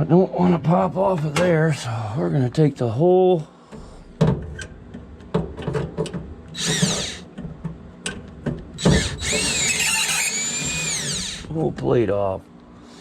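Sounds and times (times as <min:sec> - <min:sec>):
power drill motor whine: 0:06.6 - 0:07.3, 0:08.8 - 0:11.5.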